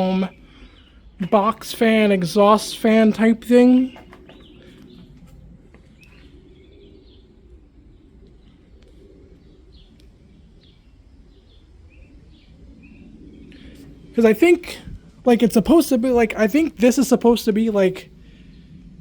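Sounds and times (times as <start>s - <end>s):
faint bird chirping: 0.0s - 18.8s
low background rumble: 0.0s - 19.0s.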